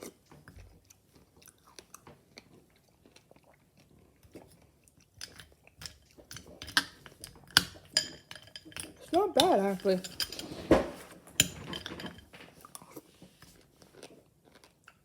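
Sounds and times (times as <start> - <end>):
person chewing: 0.0 - 6.2, 12.6 - 15.0.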